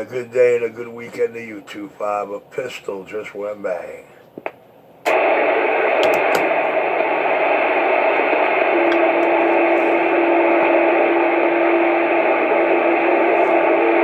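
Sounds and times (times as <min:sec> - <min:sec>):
radio static: 0:03.8 - 0:14.0.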